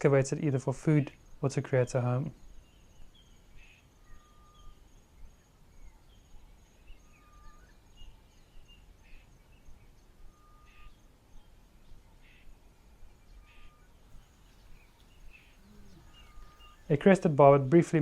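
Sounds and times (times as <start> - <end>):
birds chirping: 0.0 - 18.0
high insect whine: 1.0 - 9.5, 10.2 - 17.4.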